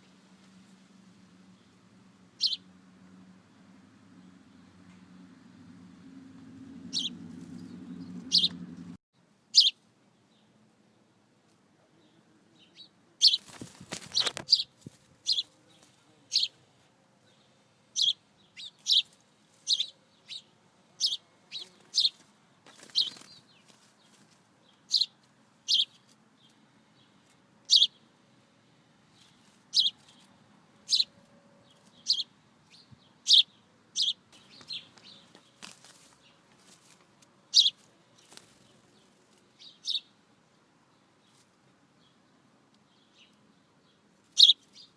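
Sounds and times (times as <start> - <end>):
small bird chirping: 2.4 - 2.7, 6.8 - 8.9, 9.5 - 10.4, 12.6 - 16.6, 17.3 - 28.1, 29.1 - 36.4, 37.5 - 40.2, 42.8 - 44.9
wings flapping: 13.2 - 15.1, 21.7 - 24.4, 34.6 - 37.0, 38.2 - 38.8.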